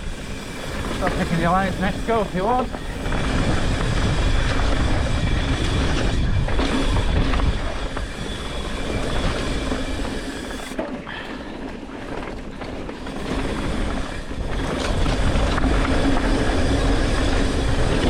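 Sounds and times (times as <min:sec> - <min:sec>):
wind on microphone: 0:00.0 - 0:10.7
bike rattling: 0:00.0 - 0:18.0
tyres rolling over dirt: 0:00.0 - 0:18.0.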